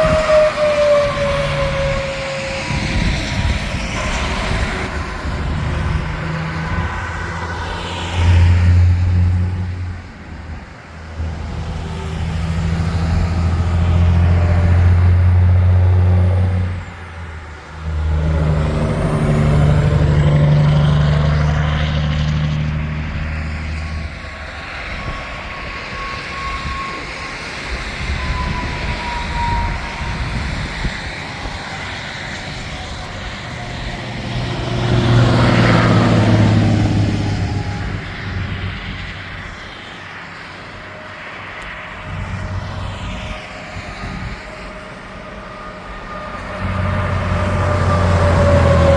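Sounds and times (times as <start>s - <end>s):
heavy trucks passing: 0.0s - 48.9s.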